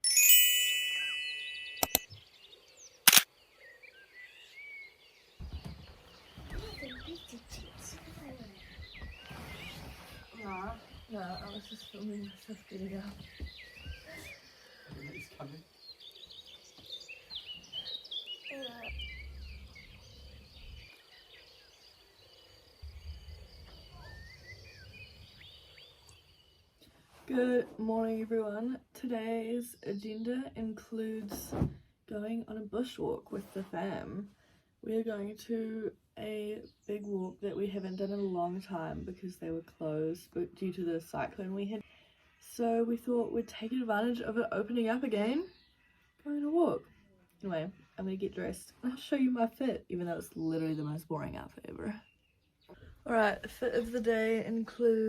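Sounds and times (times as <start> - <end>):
bright ringing chime: 0.0 - 2.1
small birds chirping: 0.8 - 31.4, 32.1 - 55.0
camera shutter clicks: 3.1 - 3.3.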